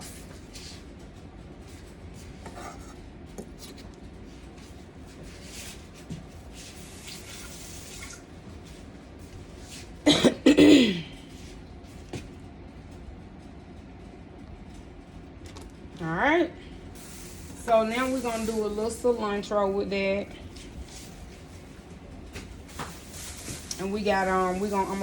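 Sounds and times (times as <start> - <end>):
tap water running: 6.8 - 8.3
person coughing: 10.0 - 11.2.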